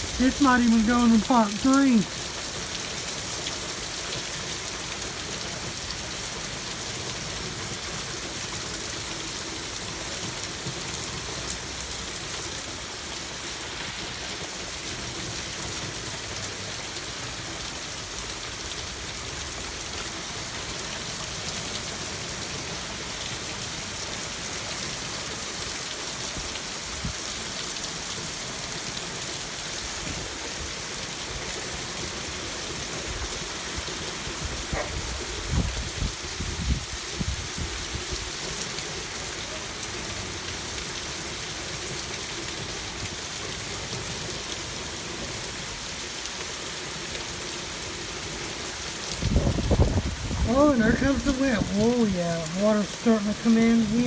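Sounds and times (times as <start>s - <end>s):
heavy rain downpour: 0.0s - 54.0s
water spilling from gutters: 0.0s - 54.0s.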